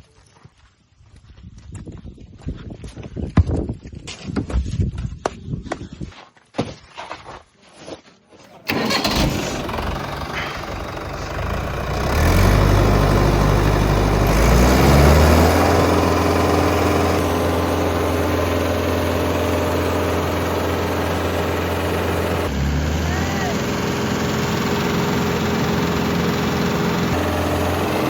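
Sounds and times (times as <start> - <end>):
tractor diesel engine starting: 8.5 - 28.0.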